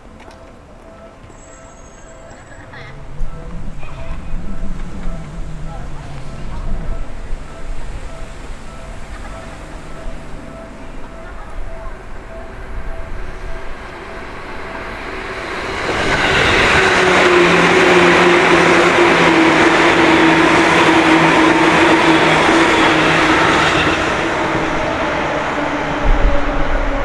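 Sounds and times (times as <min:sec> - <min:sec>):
train passing: 0:00.0 - 0:27.0
steady whine: 0:02.3 - 0:22.8.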